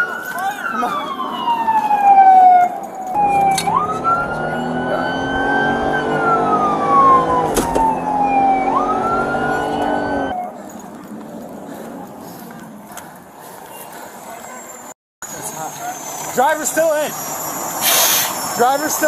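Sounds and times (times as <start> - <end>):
emergency siren wailing: 0.0 - 11.2, 15.3 - 19.0.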